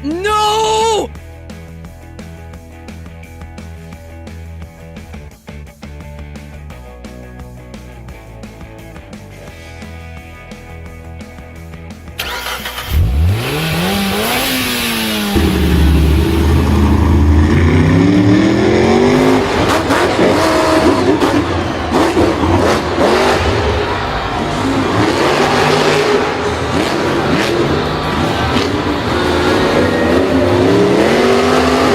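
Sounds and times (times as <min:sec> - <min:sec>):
vehicle engine revving: 0:12.2 - 0:31.9
rushing noise: 0:13.4 - 0:31.9.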